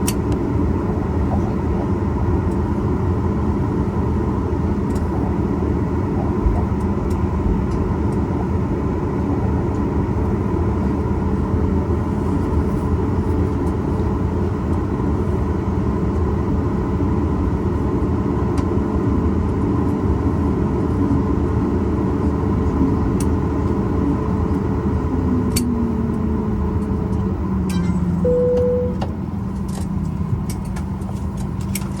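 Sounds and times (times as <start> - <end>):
jet engines rumbling: 0.0 - 32.0
brief single tone: 27.6 - 29.2
whine falling in pitch: 27.6 - 29.2.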